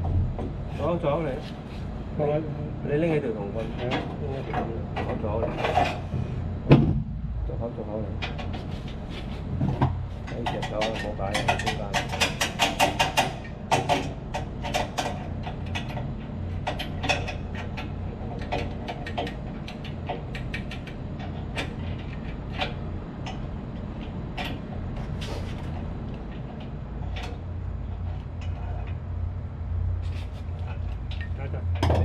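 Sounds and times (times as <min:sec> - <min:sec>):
low machinery hum: 0:00.0 - 0:32.0
light metal clicks and knocks: 0:09.6 - 0:29.0.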